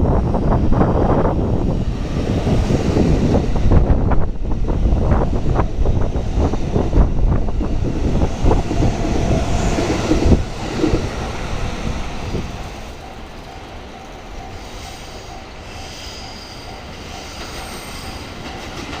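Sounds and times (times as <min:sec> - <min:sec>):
train wheels clacking over rail joints: 0:16.6 - 0:19.0.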